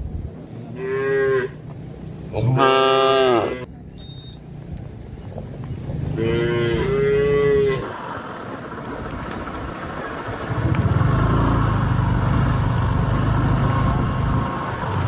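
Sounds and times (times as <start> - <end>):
cow mooing: 0.8 - 1.6, 2.4 - 3.7, 6.2 - 7.9.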